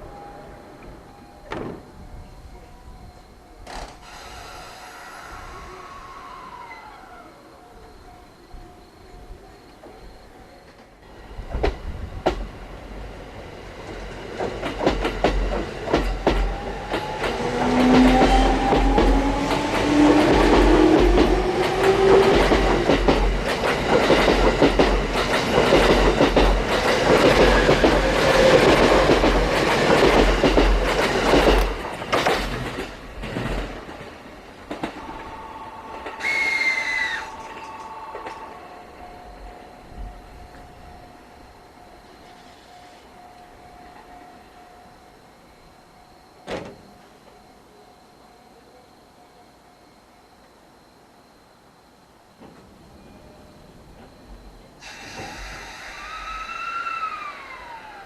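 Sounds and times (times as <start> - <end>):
train wheels clicking over rail joints: 3.6 - 5.1, 13.8 - 35.3, 54.8 - 56.2
train running roar: 3.6 - 8.7, 10.7 - 45.3, 52.4 - 58.0.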